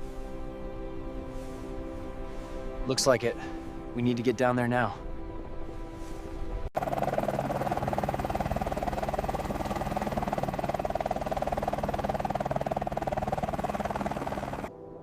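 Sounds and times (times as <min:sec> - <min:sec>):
helicopter rotor chop: 0:06.8 - 0:14.7.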